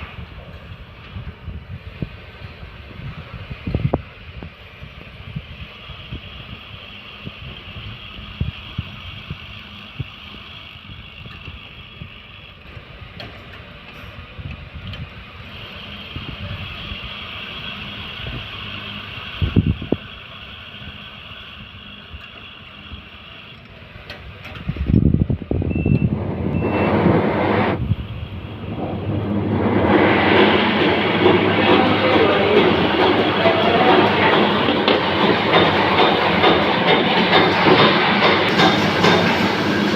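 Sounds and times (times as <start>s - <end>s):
wind buffeting microphone: 24.6s - 38.6s
loud rushing noise: 25.5s - 39.9s
short high beeps: 25.7s - 27.1s.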